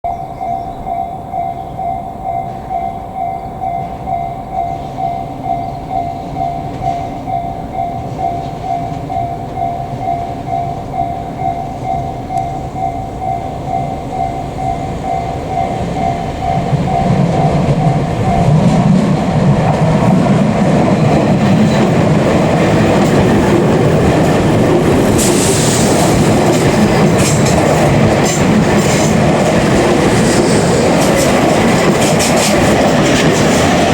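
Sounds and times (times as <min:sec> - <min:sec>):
two-note warning bell: 0:00.1 - 0:18.9
electric train rumbling past: 0:00.1 - 0:33.9
wheel clatter over rail joints: 0:16.6 - 0:33.9.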